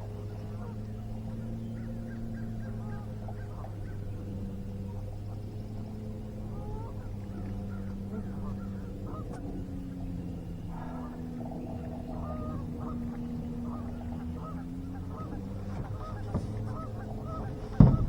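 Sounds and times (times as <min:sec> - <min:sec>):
boat motor humming: 0:00.0 - 0:18.0
short bird calls: 0:06.4 - 0:18.0.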